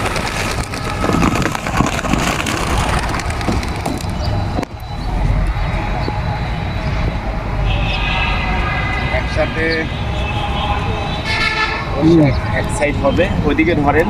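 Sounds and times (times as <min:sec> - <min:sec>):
pigeon wings clattering: 0:00.0 - 0:04.7
road traffic rumble: 0:00.0 - 0:14.0.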